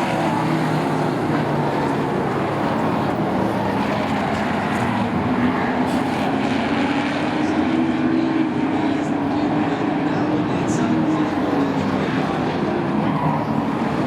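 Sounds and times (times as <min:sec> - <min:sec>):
race truck engines droning: 0:00.0 - 0:14.0.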